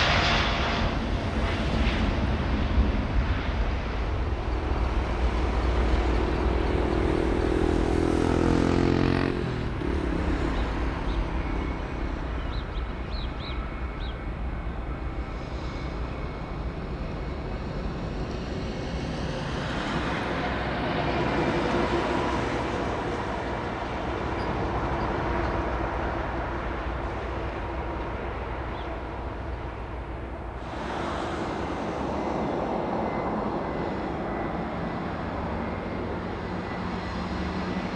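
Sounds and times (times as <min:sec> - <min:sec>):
jet airliner engine roar: 0:00.0 - 0:37.9.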